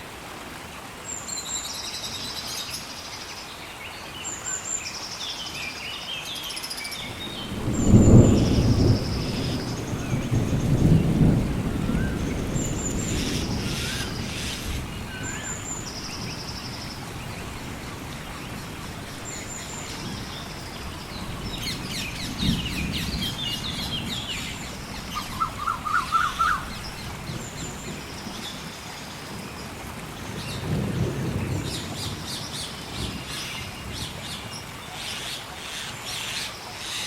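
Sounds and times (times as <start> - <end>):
rain hissing: 6.2 - 37.0
thunder rumbling: 7.0 - 28.7, 30.0 - 34.3
birds calling: 18.1 - 28.7.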